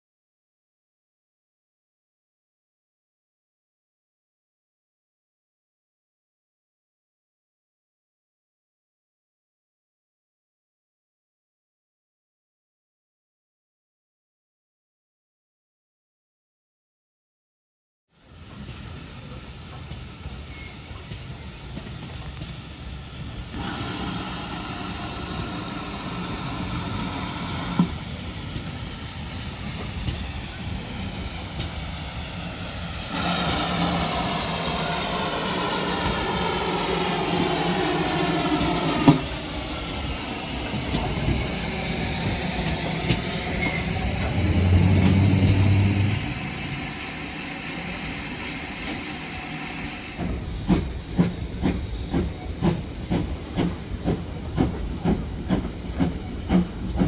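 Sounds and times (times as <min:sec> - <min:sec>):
steam locomotive hissing steam: 0:18.2 - 0:57.0.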